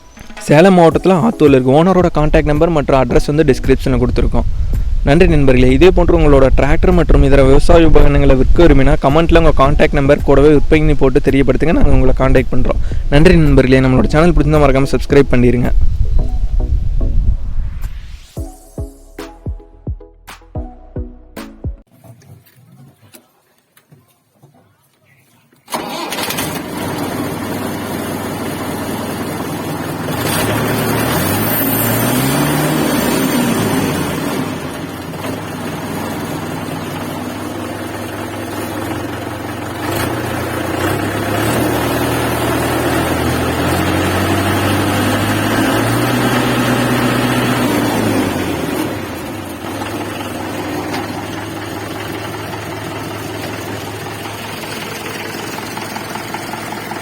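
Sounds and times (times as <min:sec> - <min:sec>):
diesel tractor engine revving: 0:25.7 - 0:57.0.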